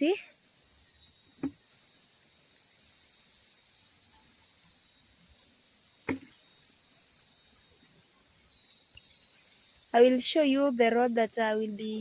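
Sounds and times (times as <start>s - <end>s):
shrill insect trill: 0.0s - 12.0s
short knock: 1.4s - 1.6s, 6.1s - 6.4s.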